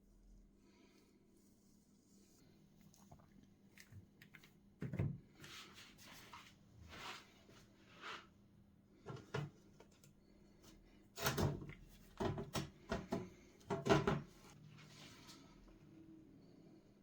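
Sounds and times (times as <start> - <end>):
objects knocking and clattering: 11.4 - 14.5.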